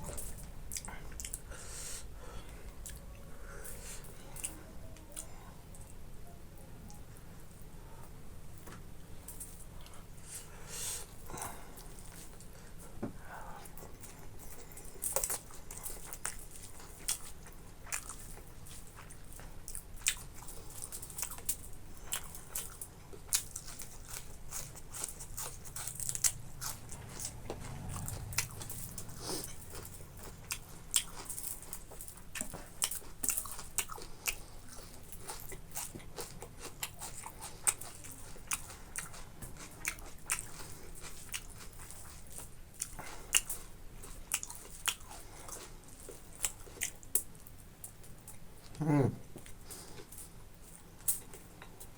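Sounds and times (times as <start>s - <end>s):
close chewing and biting: 13.5s - 51.9s.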